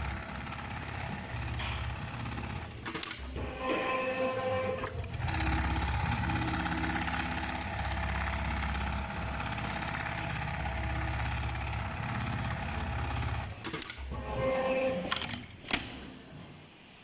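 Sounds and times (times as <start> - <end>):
stitching machine rattle: 0.0 - 3.3, 4.9 - 14.0.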